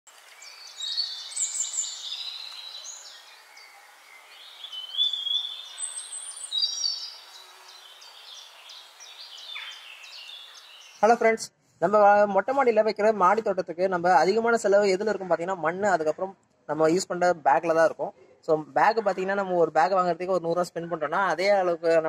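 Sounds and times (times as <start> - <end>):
birds chirping and whistling: 0.3 - 11.0.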